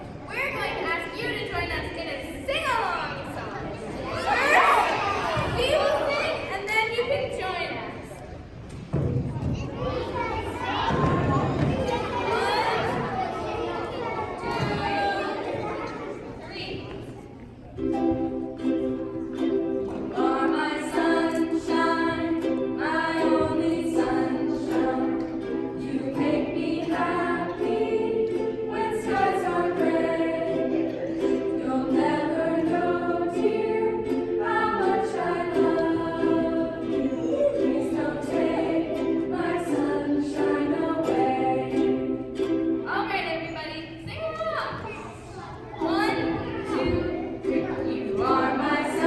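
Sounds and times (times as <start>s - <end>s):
held accompaniment chords: 9.0s - 44.0s, 45.4s - 49.0s
voices singing: 9.6s - 16.4s, 19.7s - 42.9s, 43.9s - 49.0s.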